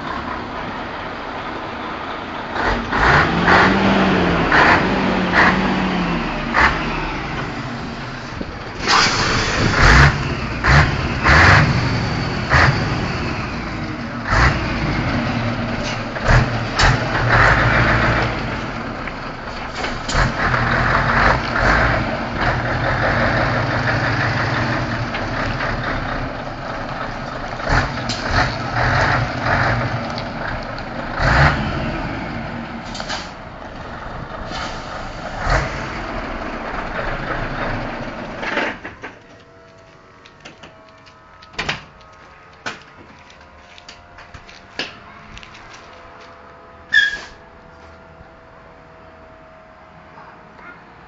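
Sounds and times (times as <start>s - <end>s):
diesel truck engine revving: 0.0s - 38.8s.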